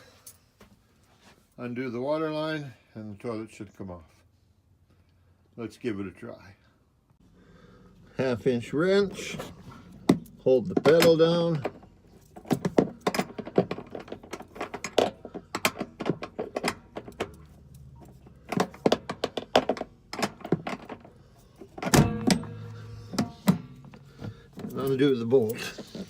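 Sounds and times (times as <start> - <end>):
heavy thump: 21.8 - 24.7.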